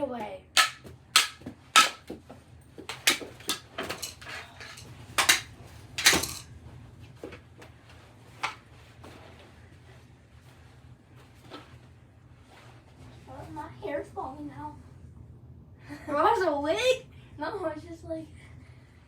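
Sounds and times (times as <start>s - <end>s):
hockey sticks and ball clacking: 0.6s - 2.2s, 2.8s - 6.4s.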